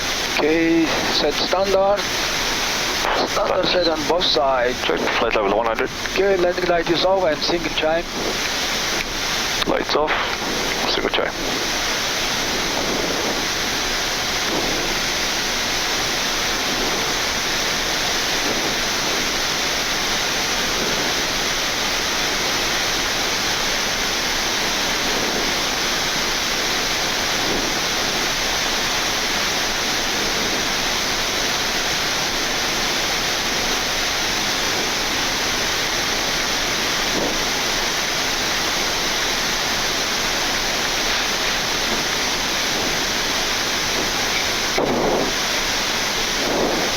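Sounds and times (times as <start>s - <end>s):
rush of air noise in cockpit: 0.0s - 46.9s.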